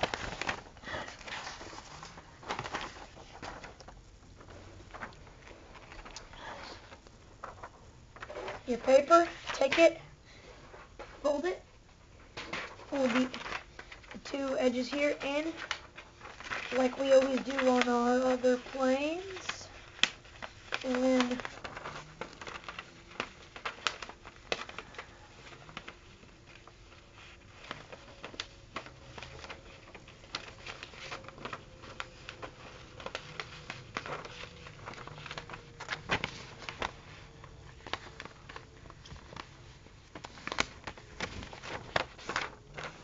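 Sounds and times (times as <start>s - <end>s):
paper rustling and crinkling: 0.0s - 43.0s.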